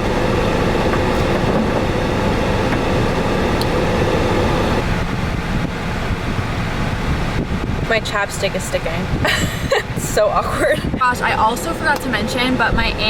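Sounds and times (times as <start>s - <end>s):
hum: 0.0s - 6.5s
car cabin rumble and hiss: 0.0s - 13.0s.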